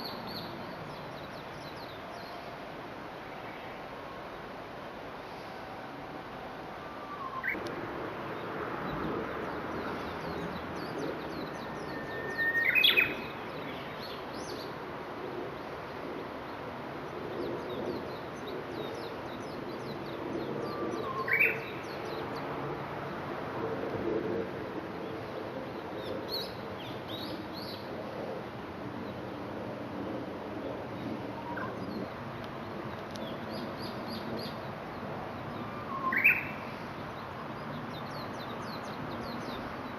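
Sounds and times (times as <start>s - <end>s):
bush warbler singing: 0.0s - 2.5s, 7.0s - 7.7s, 8.3s - 14.8s, 17.4s - 22.6s, 31.0s - 39.9s.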